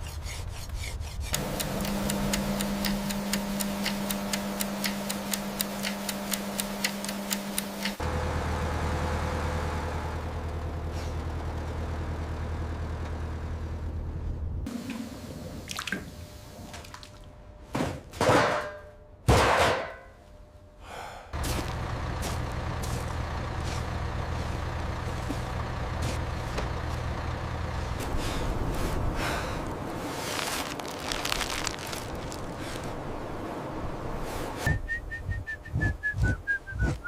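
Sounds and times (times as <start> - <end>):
low machine hum: 20.0 - 34.6.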